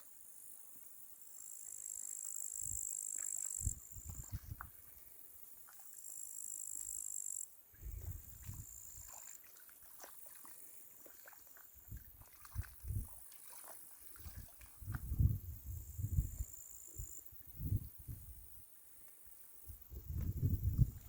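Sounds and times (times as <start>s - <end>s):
crickets chirping: 0.0s - 21.0s
soft low thumps: 20.0s - 21.0s.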